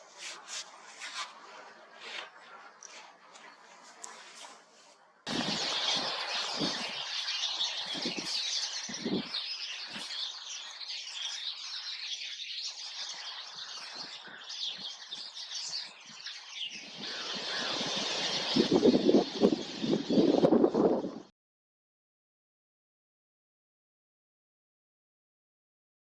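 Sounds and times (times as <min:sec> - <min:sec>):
flock of birds twittering: 0:05.3 - 0:21.3.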